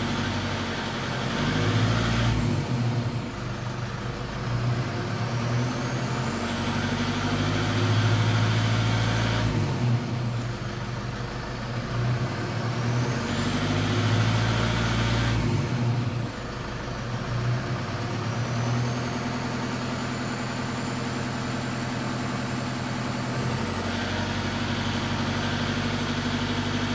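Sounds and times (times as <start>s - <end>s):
diesel engine revving: 0.0s - 26.9s.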